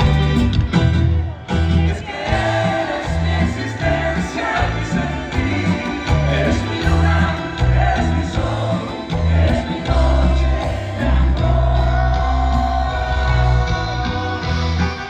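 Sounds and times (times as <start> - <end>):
live band music: 0.0 - 15.0
heavy stepping bass line: 2.3 - 14.2.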